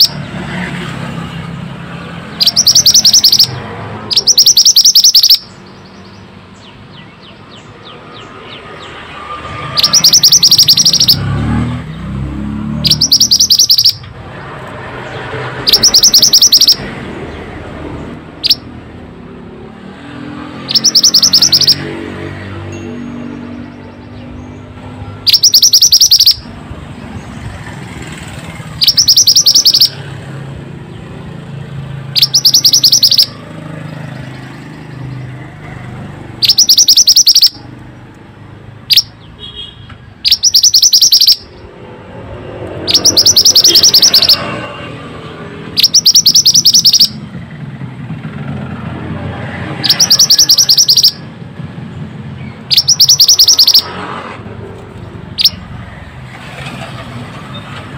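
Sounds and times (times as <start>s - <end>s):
songbird trilled chirps: 2.3s - 9.0s, 9.6s - 11.3s, 12.8s - 17.0s, 18.4s - 18.7s, 20.6s - 21.9s, 22.9s - 27.4s, 28.8s - 30.0s, 32.1s - 33.4s, 36.4s - 37.8s, 38.9s - 39.5s, 40.2s - 41.7s, 42.8s - 44.5s, 45.8s - 47.2s, 49.8s - 51.2s, 52.4s - 53.9s, 55.4s - 55.6s.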